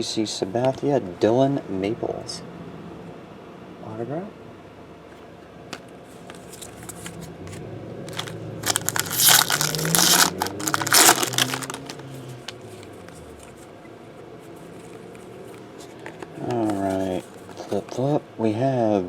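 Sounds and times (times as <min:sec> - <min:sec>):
foil wrapper crinkling and tearing: 0:08.1 - 0:12.6.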